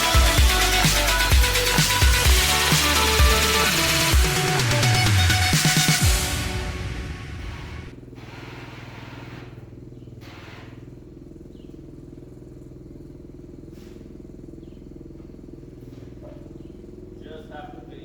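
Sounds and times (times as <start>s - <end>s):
music: 0.0s - 7.9s
engine running steadily: 0.0s - 18.0s.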